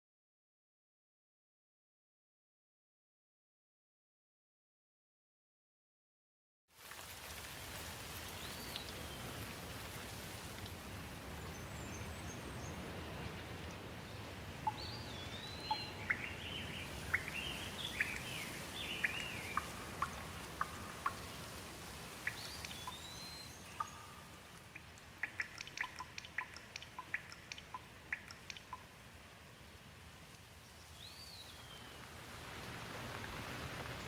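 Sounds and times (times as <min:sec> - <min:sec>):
background hiss: 0:06.8 - 0:34.0
birds whistling and chirping: 0:14.7 - 0:21.1, 0:22.2 - 0:24.2.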